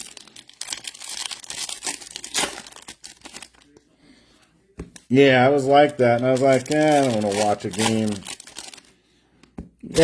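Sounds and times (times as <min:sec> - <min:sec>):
foil wrappers crinkling and tearing: 0:00.0 - 0:03.8, 0:05.2 - 0:09.0.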